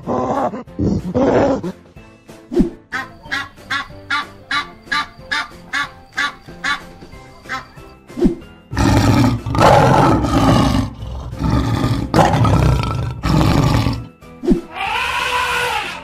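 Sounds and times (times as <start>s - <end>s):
background music: 0.0s - 16.0s
lion roaring: 8.7s - 14.1s
pitched animal call: 14.7s - 16.0s.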